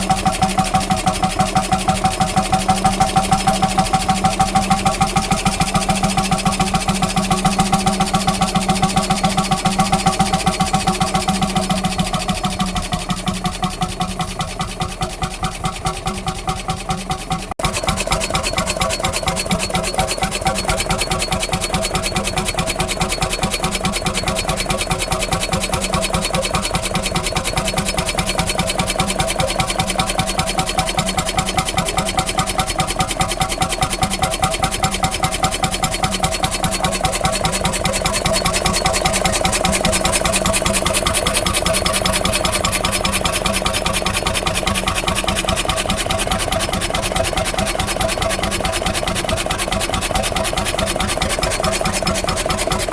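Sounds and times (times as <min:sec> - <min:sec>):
vintage engine running: 0:00.0 - 0:52.9.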